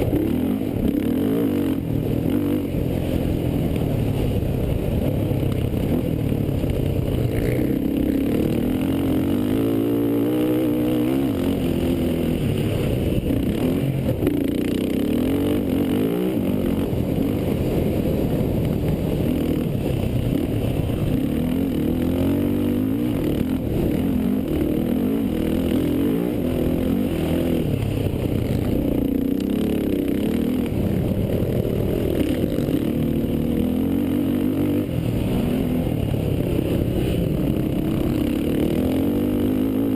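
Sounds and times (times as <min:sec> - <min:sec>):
quad engines revving: 0:20.4 - 0:39.9.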